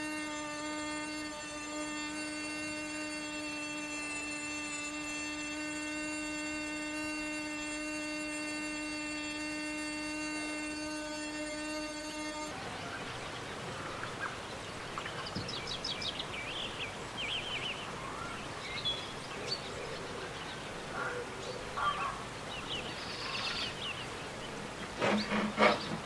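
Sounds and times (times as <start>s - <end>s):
background hiss: 0.0s - 26.0s
small birds chirping: 12.6s - 26.0s.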